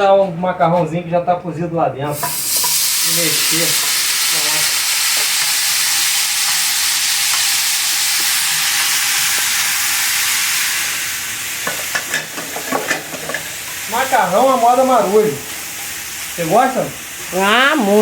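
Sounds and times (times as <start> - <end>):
pasta sizzling in a pan: 2.2 - 18.0.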